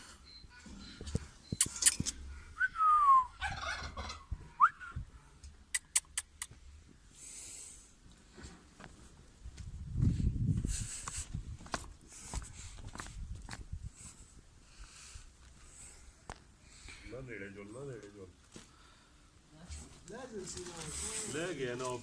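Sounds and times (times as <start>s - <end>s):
sharp clicks: 1.5s - 2.2s, 5.7s - 6.6s
farm birds calling: 3.4s - 4.6s.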